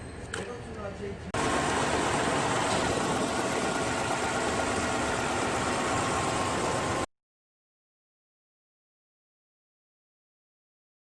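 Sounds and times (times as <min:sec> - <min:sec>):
car engine idling: 0:01.4 - 0:07.0.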